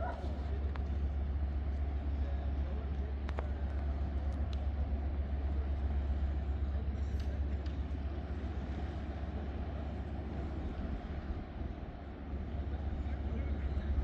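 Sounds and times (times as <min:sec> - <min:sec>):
low harbour rumble: 0:00.0 - 0:14.0
faint sharp clicks: 0:03.2 - 0:04.7.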